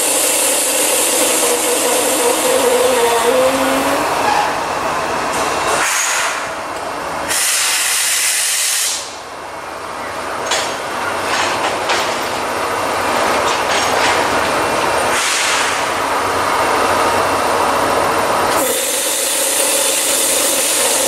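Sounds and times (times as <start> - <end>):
loud hiss: 0.0 - 4.2, 7.3 - 9.2, 18.5 - 21.0
train rolling on rails: 0.0 - 21.0.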